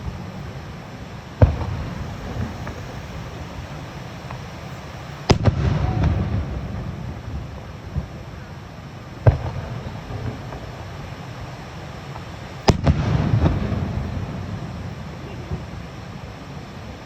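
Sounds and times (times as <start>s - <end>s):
steady low rumble: 0.0s - 11.9s
fireworks booming: 0.0s - 17.0s
small fireworks pops: 1.4s - 17.0s.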